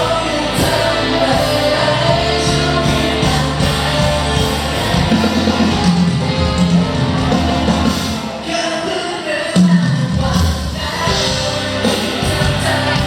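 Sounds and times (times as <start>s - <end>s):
live rock-pop band with singing: 0.0s - 13.0s.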